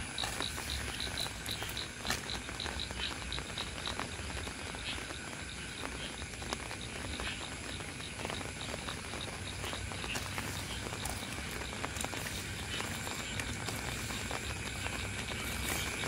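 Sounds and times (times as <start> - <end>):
drops pattering and dripping: 0.0 - 16.0
steady rain falling: 0.0 - 16.0.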